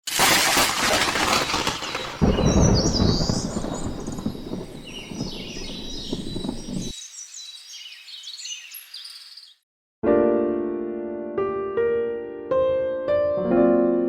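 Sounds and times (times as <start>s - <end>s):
songbirds chirping: 2.2s - 9.6s
soft electric piano music: 10.0s - 14.0s.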